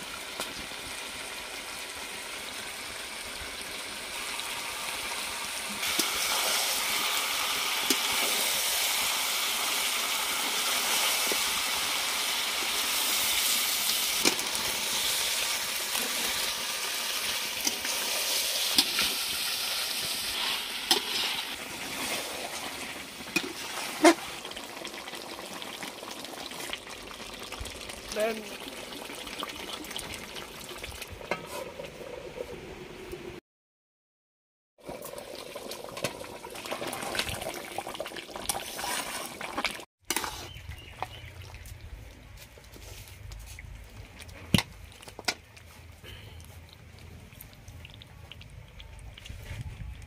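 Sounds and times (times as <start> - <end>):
chicken sizzling in oil: 0.0 - 31.5
metal spatula scraping pan: 40.1 - 40.6.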